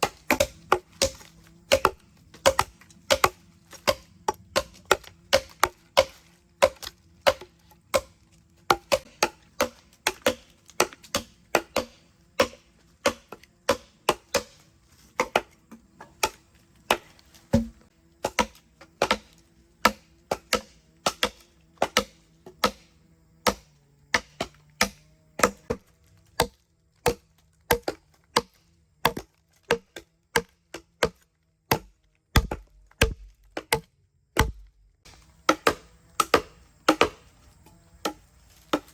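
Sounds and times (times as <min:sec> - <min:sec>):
hammer knocking on wood: 0:31.7 - 0:34.8.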